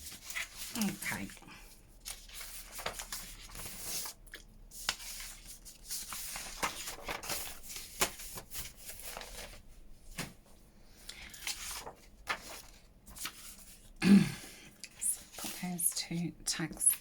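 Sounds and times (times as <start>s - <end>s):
paper rustling and sliding: 0.0s - 1.4s, 2.0s - 10.6s, 11.2s - 13.9s, 15.2s - 15.6s.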